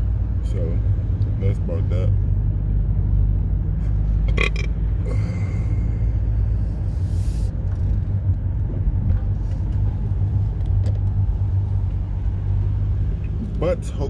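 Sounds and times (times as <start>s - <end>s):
car engine and exhaust drone: 0.0s - 14.0s
short hisses: 6.9s - 7.6s.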